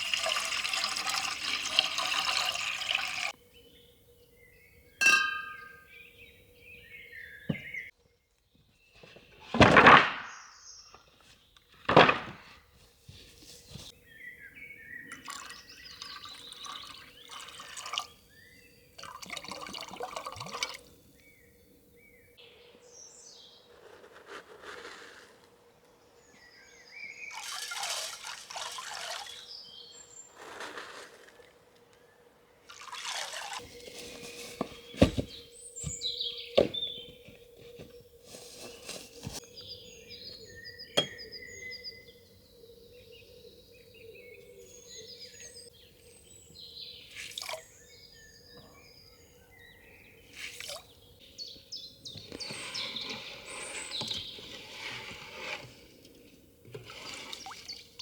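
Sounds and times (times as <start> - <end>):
liquid pouring and splashing: 0.0 - 3.4, 15.2 - 18.2, 19.0 - 20.9, 27.3 - 29.5, 32.7 - 33.7.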